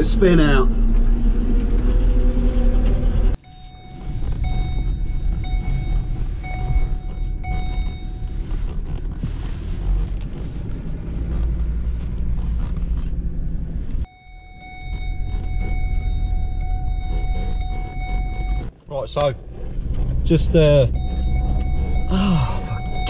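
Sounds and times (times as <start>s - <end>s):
road and wind noise: 0.0s - 23.0s
tractor engine rumbling: 0.0s - 23.0s
faint pulsing tone: 14.0s - 18.7s.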